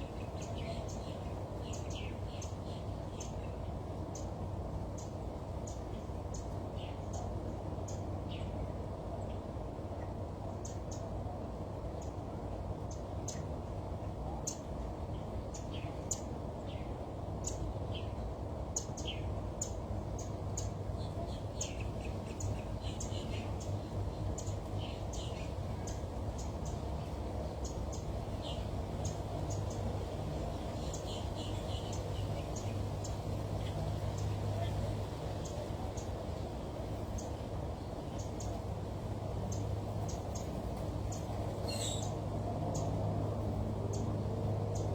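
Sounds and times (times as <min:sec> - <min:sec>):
birds chirping: 0:00.0 - 0:09.4, 0:14.4 - 0:44.9.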